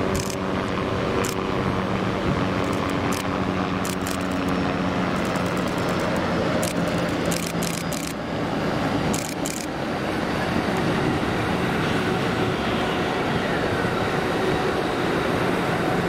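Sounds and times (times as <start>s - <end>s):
train clicks and clanks: 0.0s - 0.4s, 2.6s - 4.5s, 5.2s - 8.2s, 9.1s - 9.7s
train passing drone: 0.0s - 16.0s.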